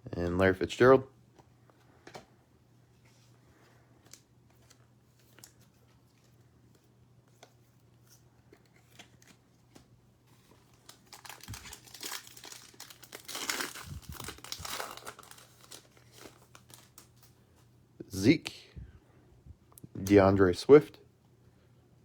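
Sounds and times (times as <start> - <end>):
foil wrapper tearing and crinkling: 10.6 - 17.3.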